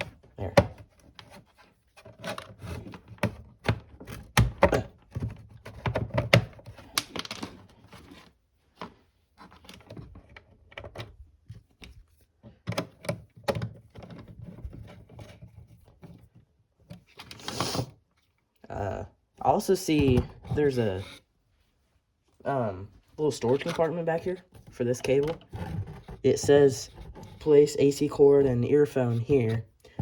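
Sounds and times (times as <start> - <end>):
radio case clicks and knocks: 3.2 - 7.7.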